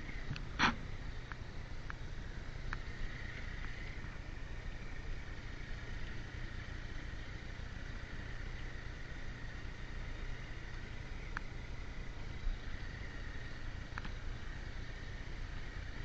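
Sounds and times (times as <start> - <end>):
motorcycle riding: 0.0 - 16.0
faint clicks: 13.9 - 14.2.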